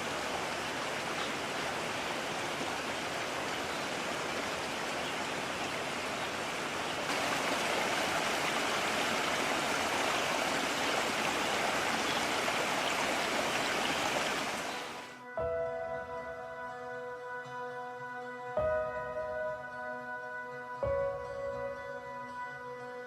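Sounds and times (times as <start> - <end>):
stream rushing over rocks: 0.0 - 15.2.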